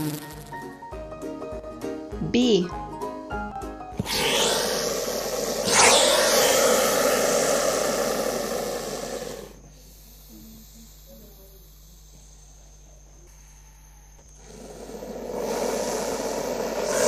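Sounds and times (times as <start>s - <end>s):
snake hissing: 4.0s - 12.7s, 14.4s - 17.0s.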